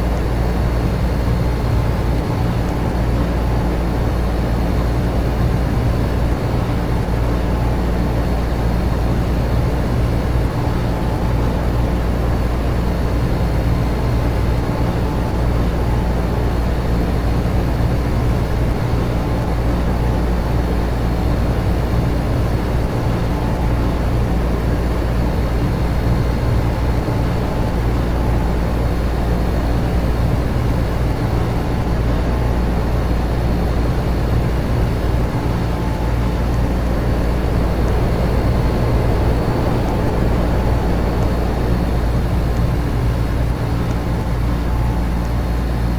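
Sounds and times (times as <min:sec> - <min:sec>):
air conditioner and fans humming: 0:00.0 - 0:45.9
faint steady tones: 0:34.8 - 0:45.0.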